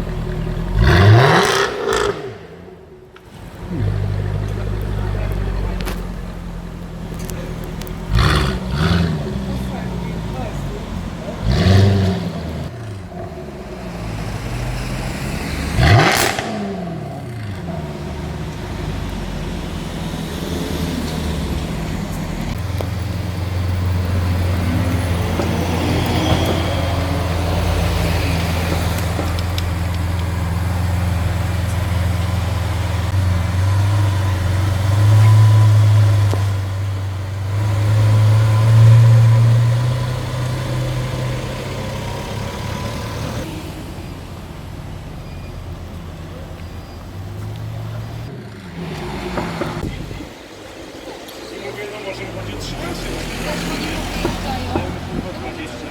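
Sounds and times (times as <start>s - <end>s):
car engine revving: 0.0s - 45.2s, 45.8s - 55.9s.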